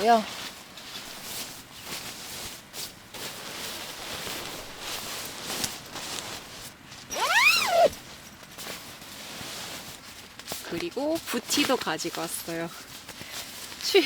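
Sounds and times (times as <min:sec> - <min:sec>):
sleeping bag fabric rustling: 0:00.0 - 0:14.0
short rising and falling call: 0:07.2 - 0:07.9.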